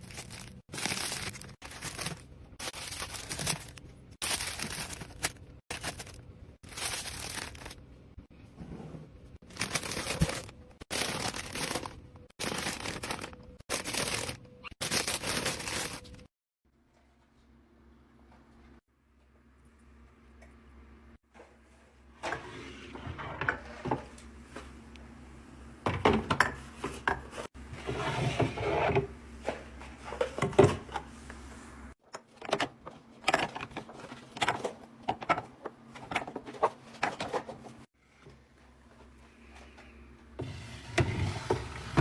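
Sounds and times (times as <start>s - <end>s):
drawer sliding: 40.4s - 42.0s.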